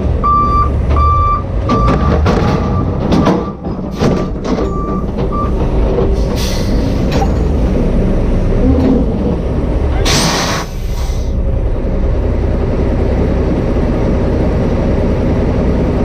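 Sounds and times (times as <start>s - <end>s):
heavy diesel machinery rumbling: 0.0s - 16.0s
reversing alarm beeping: 0.2s - 3.7s, 4.6s - 5.6s.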